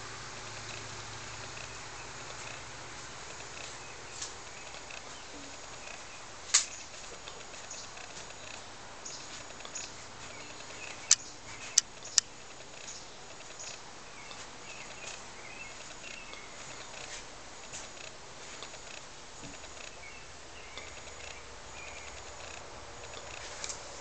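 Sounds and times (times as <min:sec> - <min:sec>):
background hiss: 0:00.0 - 0:24.0
faint birds chirping: 0:00.0 - 0:24.0
sharp clicks: 0:10.6 - 0:13.8.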